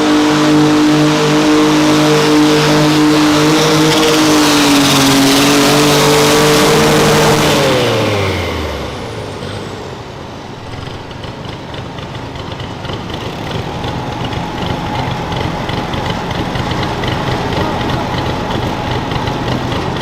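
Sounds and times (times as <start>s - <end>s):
tractor engine revving down: 0.0s - 20.0s
engine idling with ticking: 10.6s - 20.0s.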